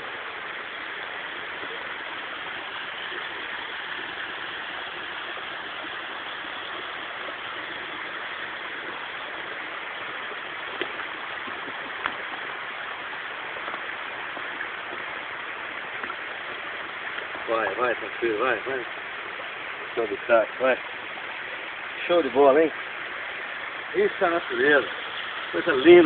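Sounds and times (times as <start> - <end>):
stream flowing: 0.0 - 26.0.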